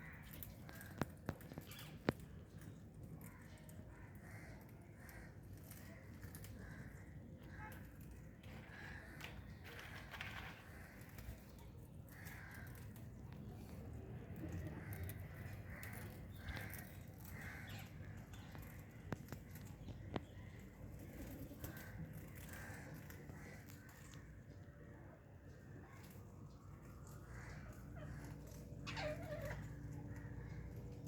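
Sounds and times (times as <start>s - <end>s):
birds giving harsh calls: 27.0s - 31.0s.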